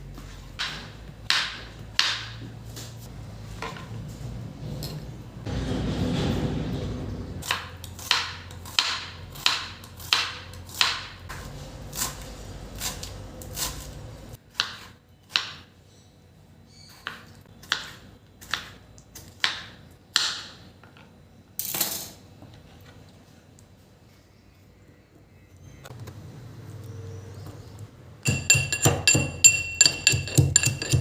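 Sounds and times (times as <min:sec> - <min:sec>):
sharp kitchen knocks: 0:00.6 - 0:02.4, 0:28.3 - 0:31.0.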